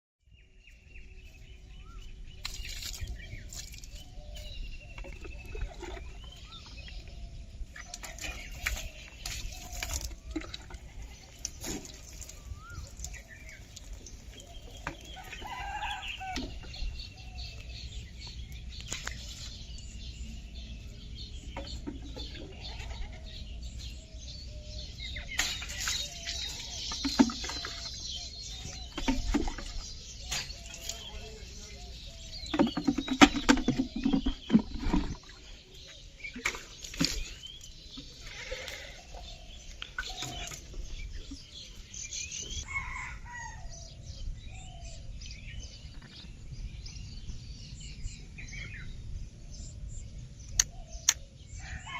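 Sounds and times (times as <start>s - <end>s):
birds calling: 0.4s - 51.9s
knocks and clatter: 32.4s - 35.3s.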